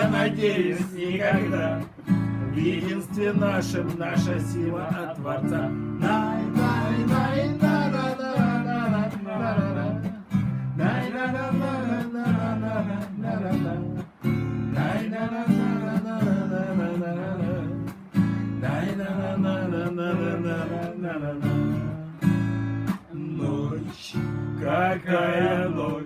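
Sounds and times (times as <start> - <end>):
person singing wordless melody: 0.0 - 14.1
acoustic guitar strumming: 0.0 - 26.0.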